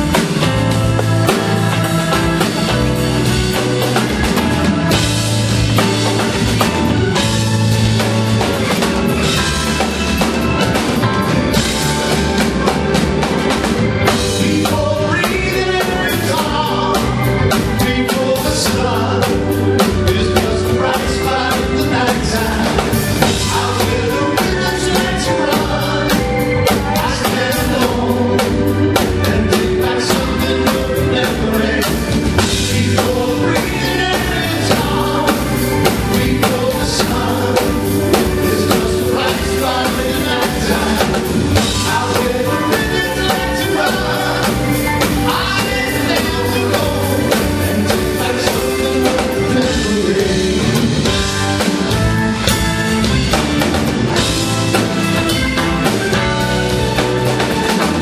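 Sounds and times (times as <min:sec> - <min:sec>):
drum kit beat: 0:00.0 - 0:58.0
rock band playing: 0:00.0 - 0:58.0
lead singer vocals: 0:14.0 - 0:51.6.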